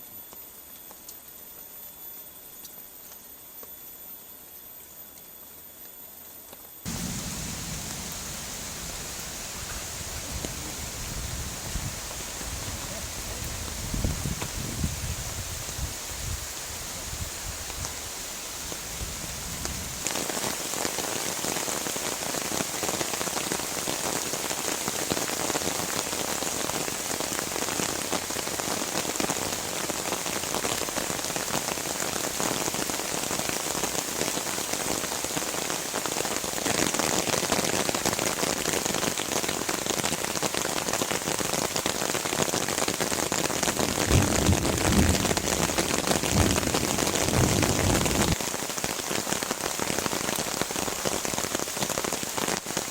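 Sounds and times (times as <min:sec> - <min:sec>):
low rumble: 0:06.9 - 0:14.2
heavy rain pouring: 0:06.9 - 0:52.9.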